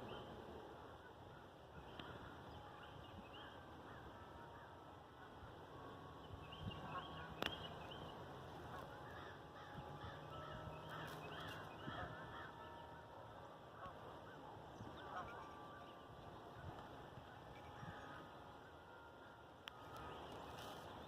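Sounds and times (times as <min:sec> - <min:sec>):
birds calling in short calls: 0:08.7 - 0:12.8.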